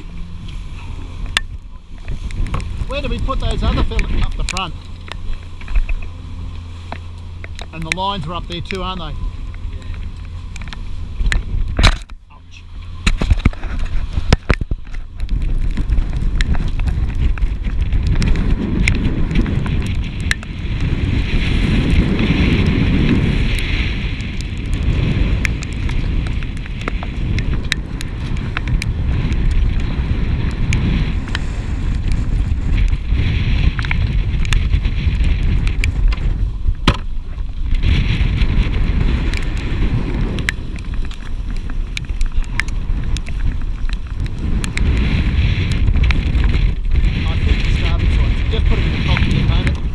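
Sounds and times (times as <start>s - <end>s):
steady low rumble: 0.0s - 49.9s
wind buffeting microphone: 0.0s - 49.9s
sharp clicks and knocks: 1.3s - 6.1s, 25.4s - 29.9s, 33.6s - 37.9s.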